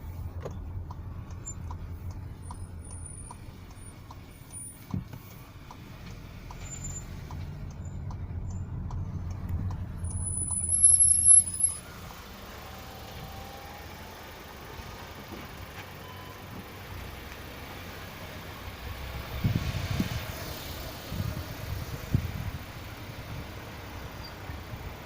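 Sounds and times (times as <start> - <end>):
car rolling low rumble: 0.0 - 25.0
brake pads squeaking: 0.1 - 12.1.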